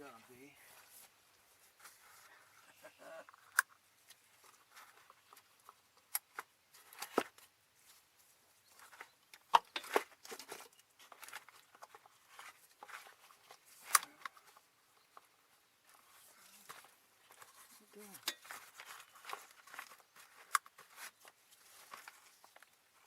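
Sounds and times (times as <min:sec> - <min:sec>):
rustling scrapes: 0:00.2 - 0:02.6, 0:09.8 - 0:14.6, 0:15.8 - 0:23.0.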